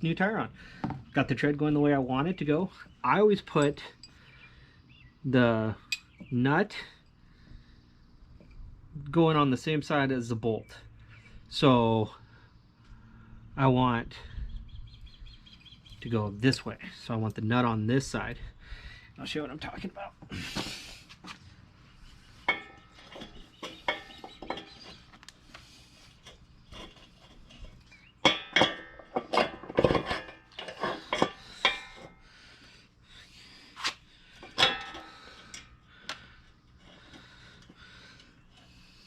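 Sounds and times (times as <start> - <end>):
metal hardware clinking: 34.4 - 35.8.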